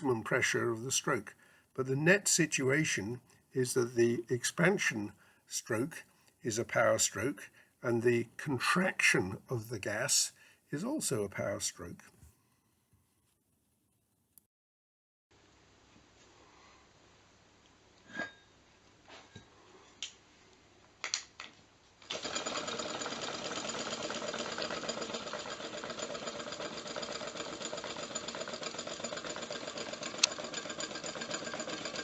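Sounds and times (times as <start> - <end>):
rapid mechanical clatter: 22.1 - 32.0
scattered clicks and knocks: 26.4 - 32.0.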